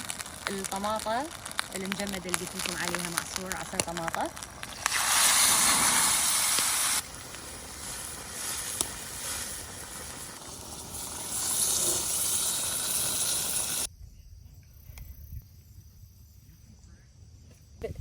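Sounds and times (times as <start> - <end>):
tomato sauce sizzling in a pot: 0.0 - 13.9.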